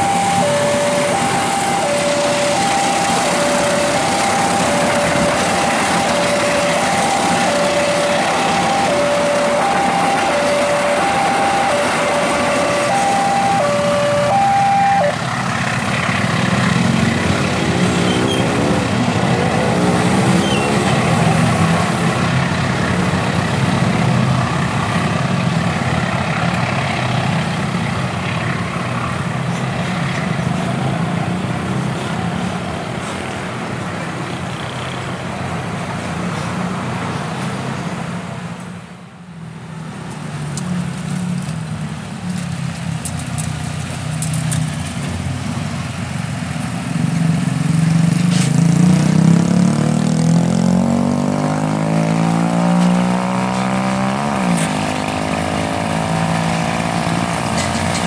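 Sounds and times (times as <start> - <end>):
train wheels rumbling on rails: 0.0 - 14.0, 56.6 - 58.0
level crossing warning bell: 0.0 - 15.2
diesel engine hum: 0.0 - 58.0.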